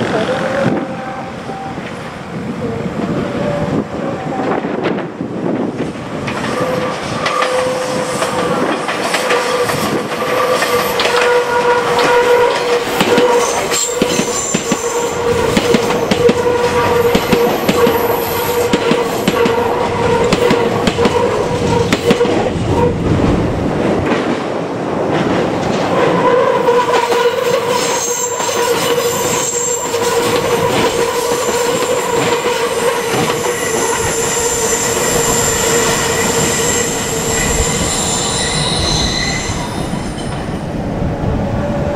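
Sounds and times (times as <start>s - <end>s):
electric train running past: 0.0s - 41.9s
wheel squeal: 6.4s - 8.4s, 26.3s - 40.5s.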